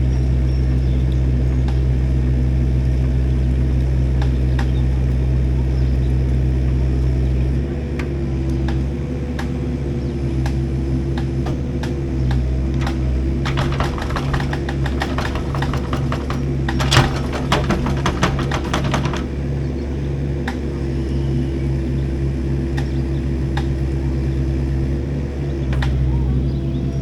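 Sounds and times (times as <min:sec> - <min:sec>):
heavy engine running: 0:00.0 - 0:27.0
metal clicking and rattling: 0:11.8 - 0:19.8.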